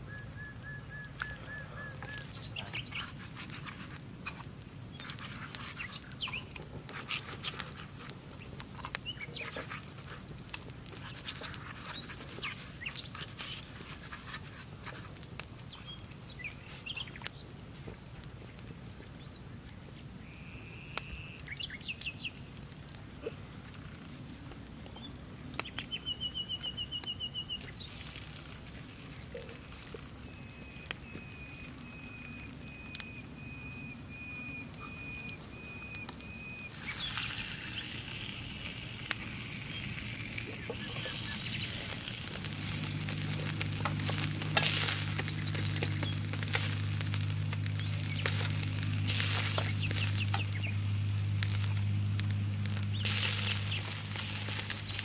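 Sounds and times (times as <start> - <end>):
bird piping notes: 0.0 - 3.8, 29.8 - 55.0
faint chirp: 0.0 - 14.6, 15.4 - 55.0
birds calling in trills: 0.0 - 55.0
low steady hum: 0.0 - 55.0
small clicks and taps: 24.5 - 25.9
hiss: 36.7 - 50.8.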